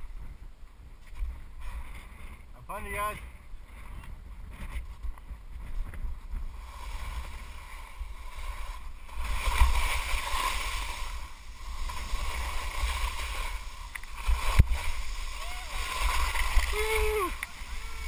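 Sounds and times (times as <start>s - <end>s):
wind on microphone: 0.0s - 18.0s
skis scraping on snow: 0.1s - 18.0s.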